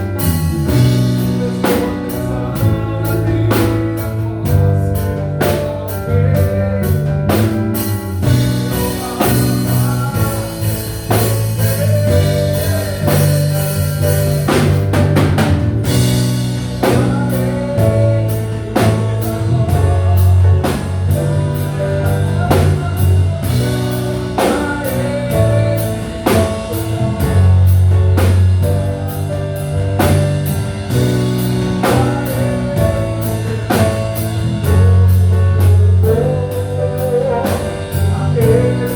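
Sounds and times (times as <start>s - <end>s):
person singing: 0.0s - 15.2s, 15.9s - 38.9s
bass and guitar: 0.0s - 38.9s
drum kit steady beat: 0.0s - 38.9s.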